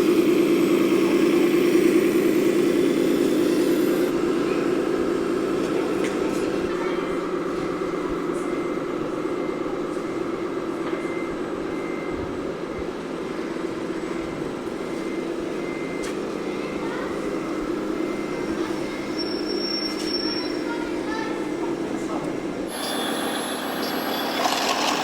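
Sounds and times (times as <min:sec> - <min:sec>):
electronic model truck engine sound: 0:00.0 - 0:06.1, 0:22.6 - 0:25.0.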